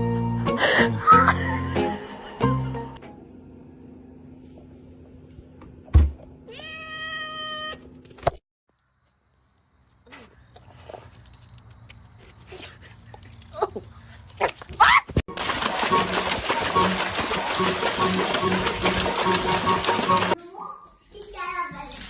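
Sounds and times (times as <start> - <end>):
cat meowing: 6.5 - 7.8.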